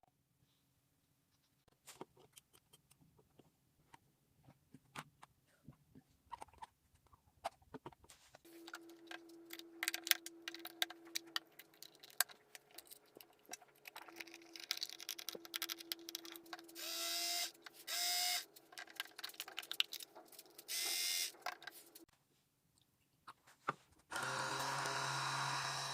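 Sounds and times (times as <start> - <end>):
small motor humming: 16.8 - 18.4, 24.1 - 25.9.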